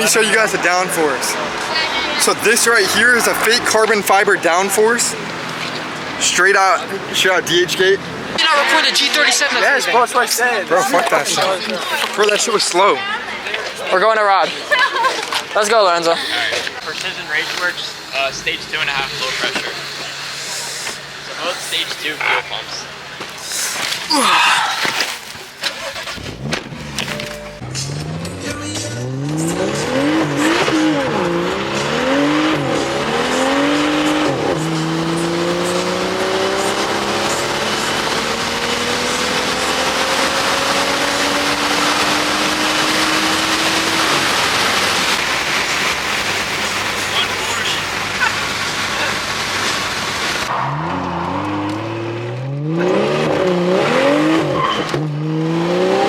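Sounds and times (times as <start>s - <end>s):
car engine revving: 15.6s - 56.0s.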